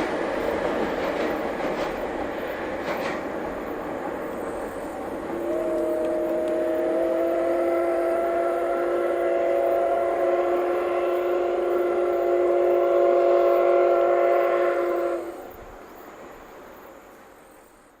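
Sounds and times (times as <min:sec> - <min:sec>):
faint train rumble: 0:00.0 - 0:18.0
steam locomotive whistle blast: 0:05.3 - 0:15.5.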